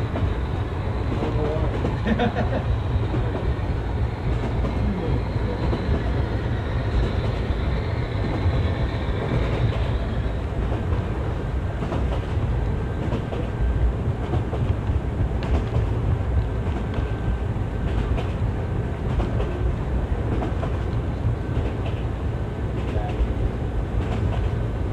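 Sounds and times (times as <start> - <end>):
faint clicks from rails: 0.0 - 2.1, 3.0 - 6.2, 6.8 - 24.7.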